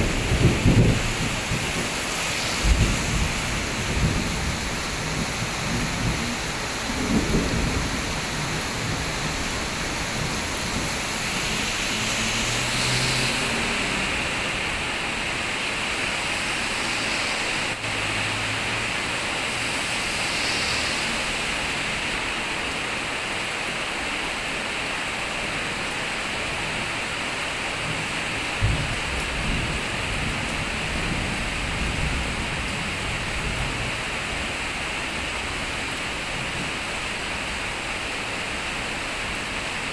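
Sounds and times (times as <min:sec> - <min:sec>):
sharp thunder crack: 0:00.0 - 0:06.2
thunder rumbling: 0:00.0 - 0:16.1, 0:27.9 - 0:34.0
heavy rain on road and roofs: 0:00.0 - 0:39.9
vehicle passing on wet road: 0:00.0 - 0:39.9.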